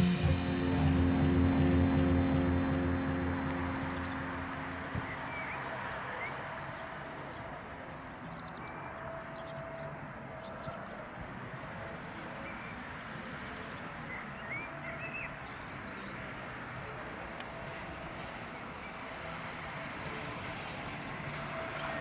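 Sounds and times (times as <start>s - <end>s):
diesel train rumble: 0.0s - 5.6s
faint held tone: 0.0s - 5.7s.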